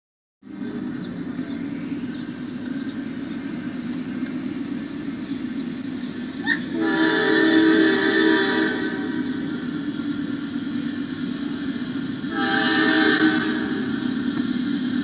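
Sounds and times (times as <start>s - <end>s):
train rumble: 0.4s - 15.0s
locomotive air horn chord: 6.4s - 9.5s, 12.2s - 13.9s.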